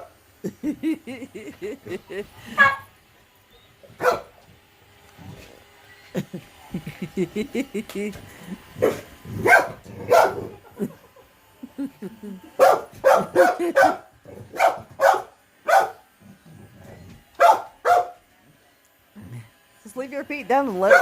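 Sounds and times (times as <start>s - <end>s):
dog barking: 2.6s - 2.9s, 4.0s - 4.3s, 8.8s - 10.5s, 12.6s - 16.0s, 17.4s - 18.2s.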